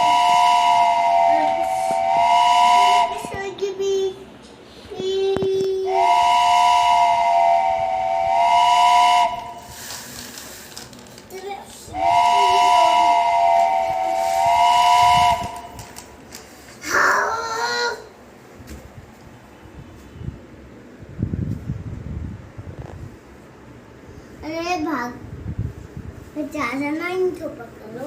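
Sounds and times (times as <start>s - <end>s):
toy train electronic whistle: 0.0s - 3.2s, 12.0s - 15.8s
steam hiss: 6.0s - 10.8s, 12.0s - 15.6s.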